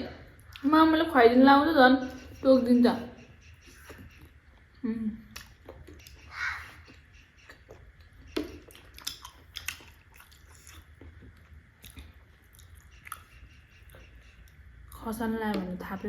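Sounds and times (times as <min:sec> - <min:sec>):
close-up chewing: 0:03.8 - 0:15.0.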